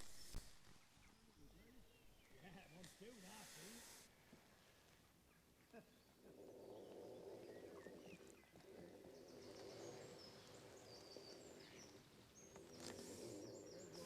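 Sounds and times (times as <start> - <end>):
low steady background noise: 0.0 - 14.0
songbird chirping: 0.0 - 14.0.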